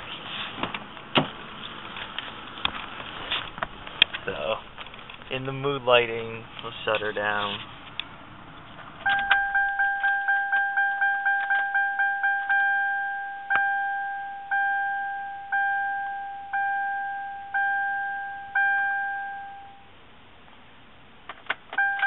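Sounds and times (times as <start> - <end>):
two-tone electronic warning chime: 9.0 - 19.9, 21.8 - 22.0.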